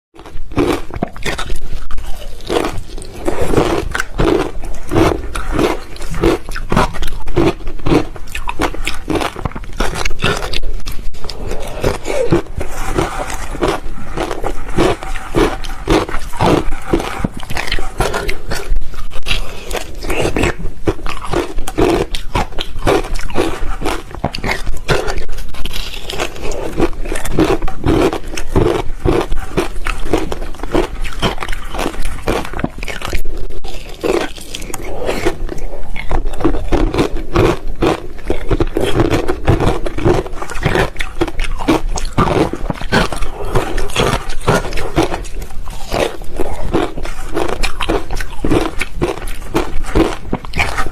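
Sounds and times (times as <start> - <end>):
ice being chewed: 0.2 - 50.9.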